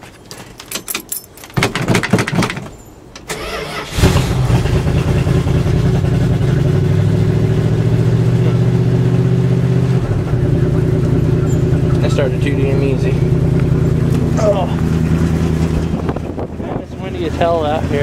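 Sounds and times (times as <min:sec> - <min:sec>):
engine cranking: 0:03.3 - 0:05.1
engine clatter: 0:03.3 - 0:18.0
car engine running: 0:04.3 - 0:18.0.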